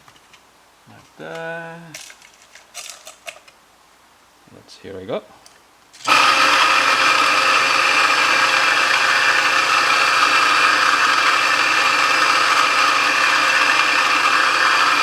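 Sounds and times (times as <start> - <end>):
coffee grinder grinding beans: 6.0 - 15.0.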